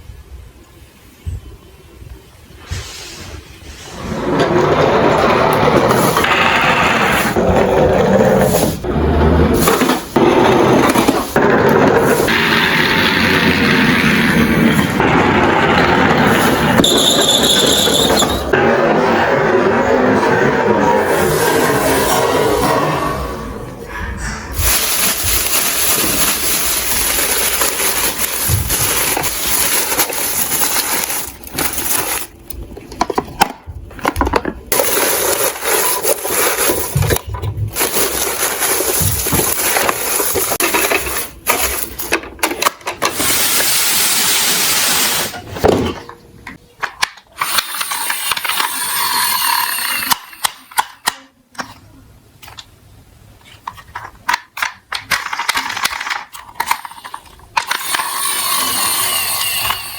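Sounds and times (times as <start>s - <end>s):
toy trucks rolling and clattering: 3.9s - 22.9s, 24.5s - 52.8s, 53.4s - 59.9s.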